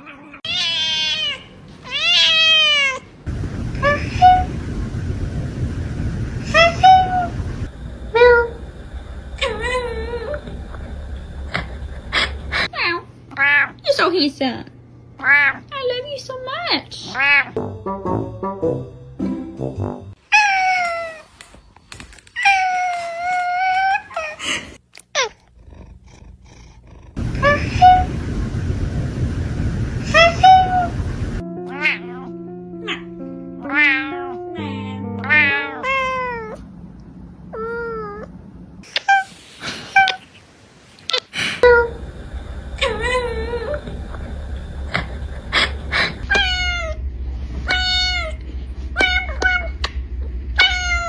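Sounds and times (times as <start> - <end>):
cat meowing: 0.0 - 3.0, 46.3 - 47.0, 47.7 - 48.4, 49.0 - 49.9, 50.6 - 51.0
steady low rumble: 3.3 - 12.7, 27.1 - 31.4, 41.6 - 51.0
background noise: 36.4 - 42.2.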